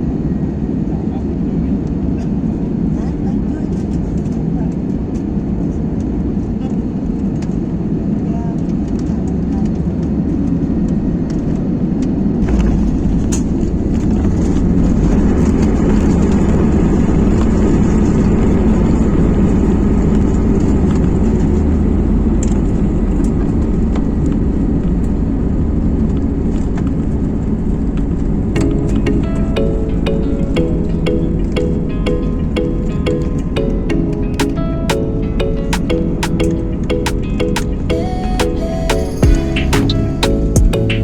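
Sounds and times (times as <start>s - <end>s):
airliner rumbling on ground: 12.4s - 28.6s.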